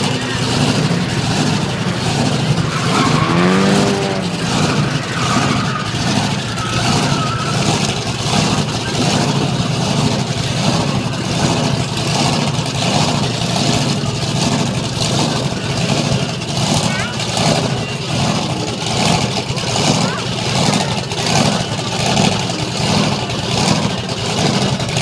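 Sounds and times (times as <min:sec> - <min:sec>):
truck engine revving: 0:00.0 - 0:25.0.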